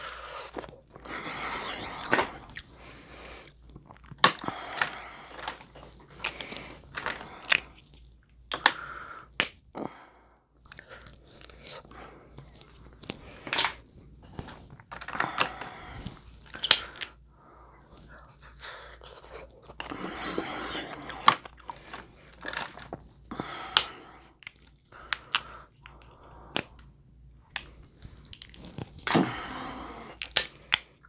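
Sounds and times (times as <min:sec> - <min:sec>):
person chewing and biting: 0:01.7 - 0:02.7, 0:27.5 - 0:31.0
shell cracks and crunches: 0:04.0 - 0:07.8, 0:16.5 - 0:17.1, 0:23.7 - 0:26.8, 0:30.2 - 0:31.0.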